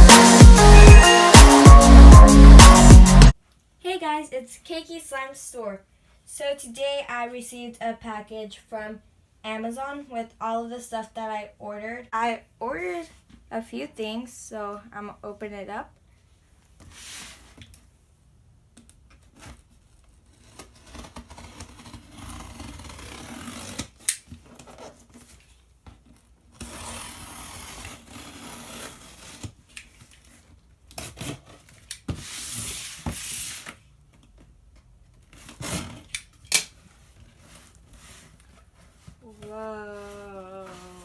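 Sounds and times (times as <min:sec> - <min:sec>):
packing tape tearing: 0:19.4 - 0:25.2.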